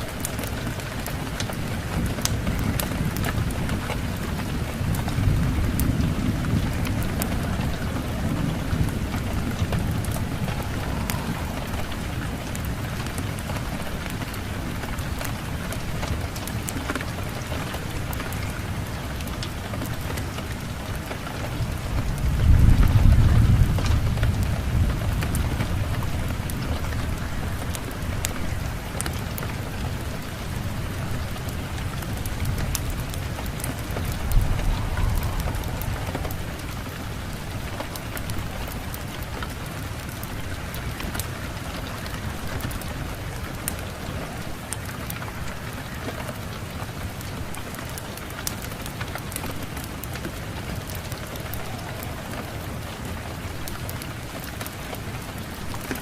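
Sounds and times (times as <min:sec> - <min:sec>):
steady rain: 0:00.0 - 0:56.0
thunder rumbling: 0:00.0 - 0:56.0
wood fire crackling: 0:00.0 - 0:56.0.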